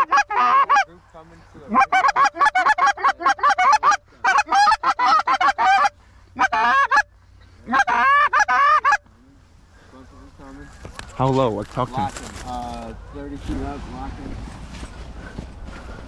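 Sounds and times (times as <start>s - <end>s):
goose honking and clucking: 0.0s - 0.9s, 1.6s - 9.1s.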